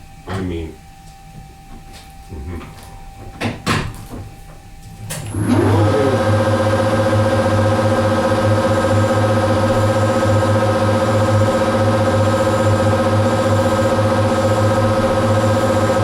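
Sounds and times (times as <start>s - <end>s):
machine tool motor whining: 5.2s - 16.0s.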